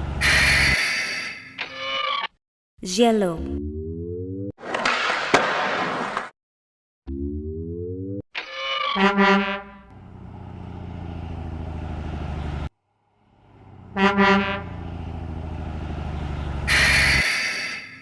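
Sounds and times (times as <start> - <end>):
truck engine running: 0.0 - 0.4, 9.8 - 17.2
truck horn honking: 9.0 - 10.1, 13.5 - 15.4, 16.4 - 17.8.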